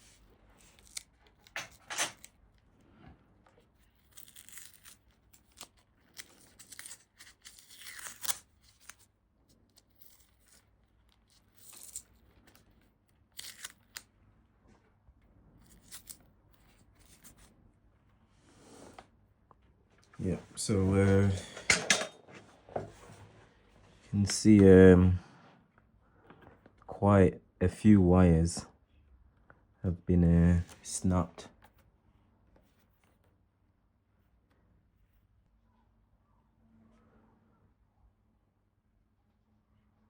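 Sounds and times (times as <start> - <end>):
tape being torn off: 0.6 - 2.4, 3.9 - 9.1, 13.3 - 14.1.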